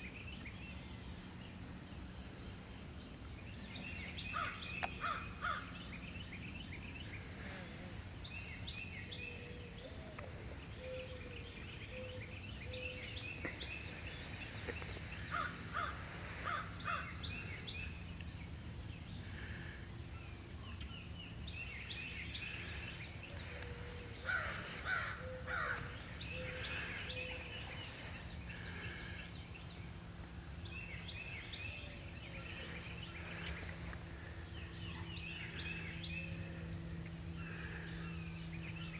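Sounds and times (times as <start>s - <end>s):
steady low hum: 0.0s - 38.9s
loud bird calls: 3.9s - 6.4s, 7.0s - 18.0s, 21.7s - 29.7s, 30.8s - 38.9s.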